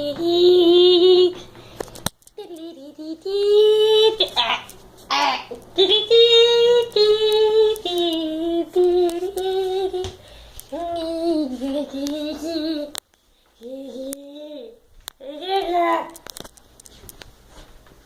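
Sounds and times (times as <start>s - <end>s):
child singing: 0.0s - 1.5s, 2.4s - 13.0s, 13.6s - 16.2s.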